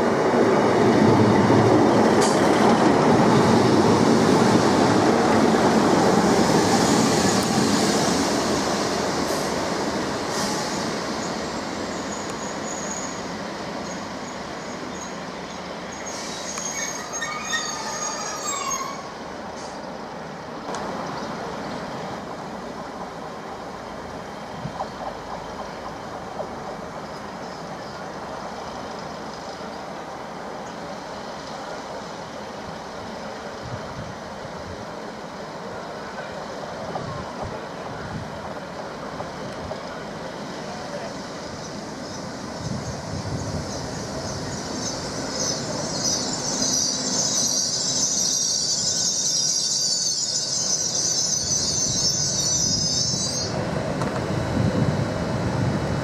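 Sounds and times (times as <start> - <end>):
train braking: 1.6 - 20.0, 35.0 - 54.8
brakes squealing: 40.6 - 53.5.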